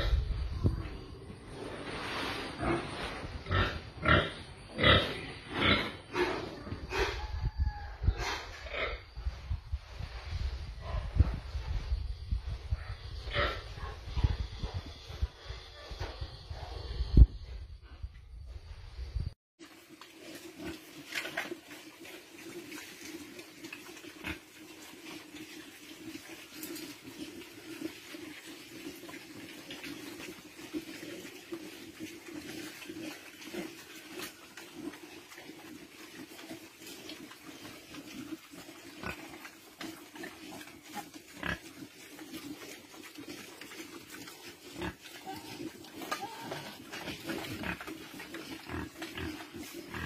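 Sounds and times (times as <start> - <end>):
pigs grunting: 2.3 - 7.4, 20.2 - 50.0.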